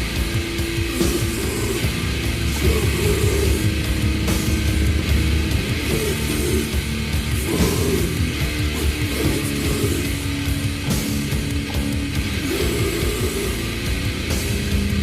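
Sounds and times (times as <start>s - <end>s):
metal band playing: 0.0s - 15.0s.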